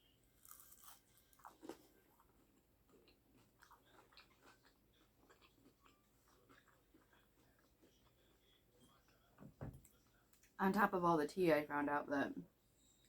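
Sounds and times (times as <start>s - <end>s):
person chewing close up: 0.4s - 9.3s.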